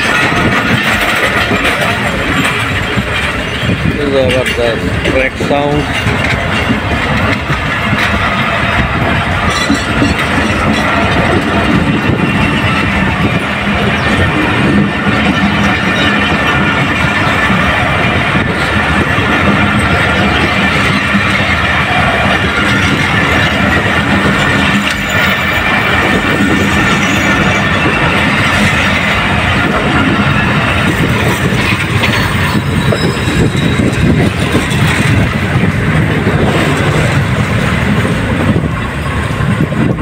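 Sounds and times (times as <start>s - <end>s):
train wheels clattering on rails: 0.0s - 40.0s
high-pitched wheel squeal: 32.0s - 34.4s.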